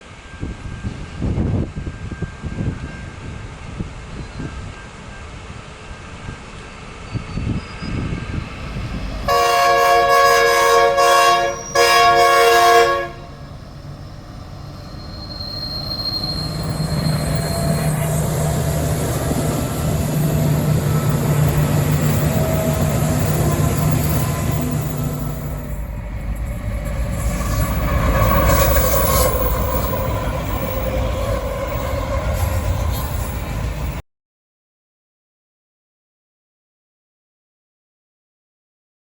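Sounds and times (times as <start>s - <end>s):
train rumbling past: 0.0s - 34.0s
train horn blasts: 8.7s - 13.7s, 16.4s - 25.9s.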